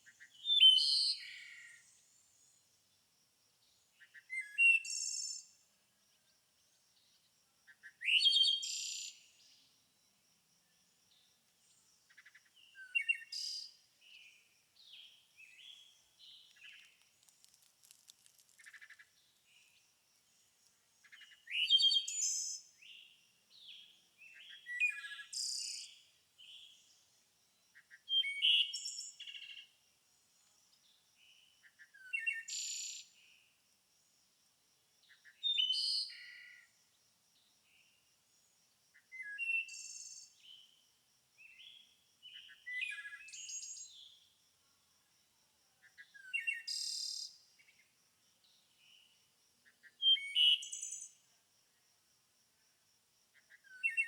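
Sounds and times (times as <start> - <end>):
songbirds singing: 0.0 - 9.8, 10.6 - 29.8, 30.4 - 33.4, 41.4 - 44.3, 45.8 - 51.3, 53.4 - 54.0
soft bird chirps: 11.7 - 19.8.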